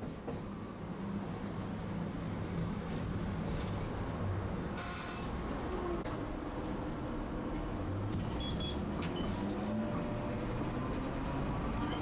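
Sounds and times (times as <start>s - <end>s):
streetcar motors and wheels rumbling: 5.4s - 12.0s.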